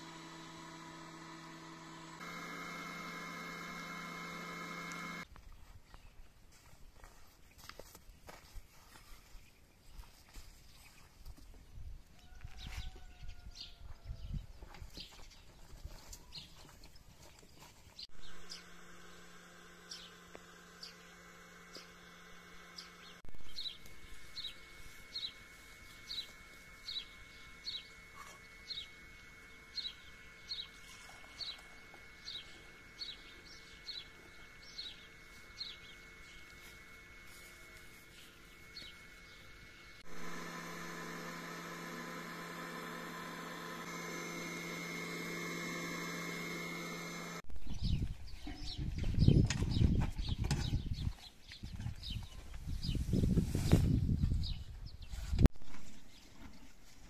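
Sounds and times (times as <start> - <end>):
electric motor humming: 0.0 - 5.3, 18.0 - 48.1.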